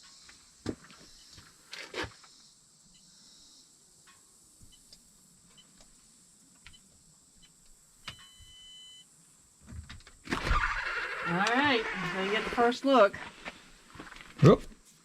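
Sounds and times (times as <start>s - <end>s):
faint crickets: 0.0s - 15.0s
long steady beep: 6.7s - 9.1s
keypad beeps: 8.0s - 9.0s.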